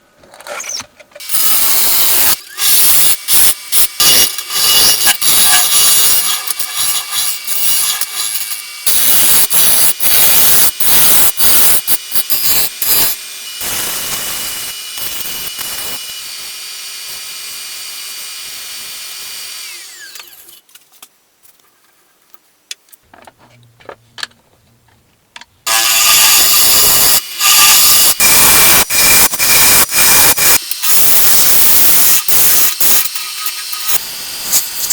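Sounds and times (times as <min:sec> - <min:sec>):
lathe tool cutting wood: 0:25.7 - 0:34.9.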